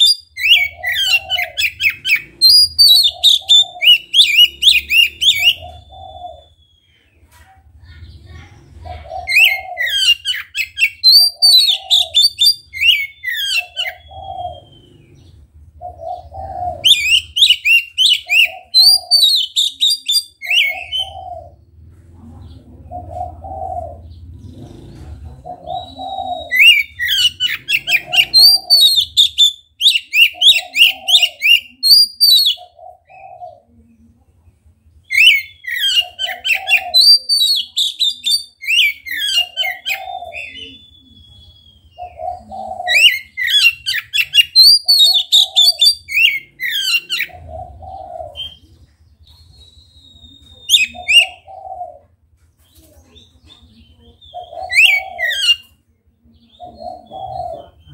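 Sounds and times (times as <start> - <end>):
songbird whistling rapid phrases: 0.0 - 5.8, 9.3 - 15.0, 16.8 - 21.2, 25.8 - 32.7, 35.1 - 42.2, 42.9 - 47.4, 48.3 - 51.5
dove cooing: 0.0 - 6.7, 7.9 - 34.4, 35.1 - 57.9.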